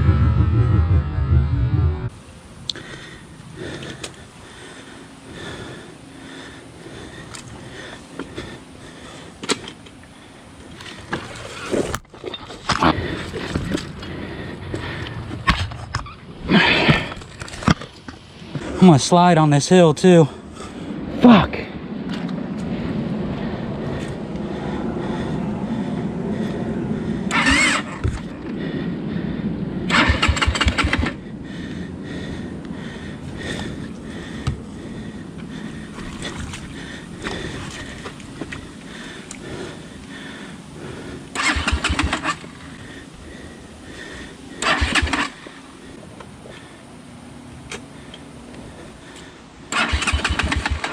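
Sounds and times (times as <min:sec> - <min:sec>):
dirt bike engine revving: 0:00.0 - 0:02.2, 0:27.3 - 0:28.3, 0:29.9 - 0:31.2, 0:41.3 - 0:42.7, 0:44.6 - 0:45.6, 0:49.7 - 0:50.9
dirt bike engine at low revs: 0:00.0 - 0:19.0, 0:20.2 - 0:50.9.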